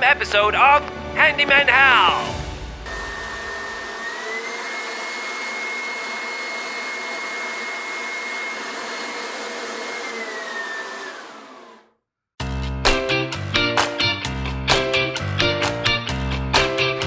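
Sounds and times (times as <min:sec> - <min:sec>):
rushing air: 0:00.8 - 0:04.6
machine motor whirring: 0:00.9 - 0:11.8.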